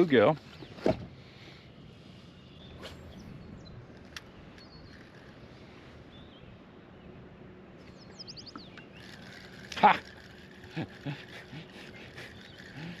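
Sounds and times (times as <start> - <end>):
faint bird chirps: 1.5 - 7.2, 11.8 - 13.0.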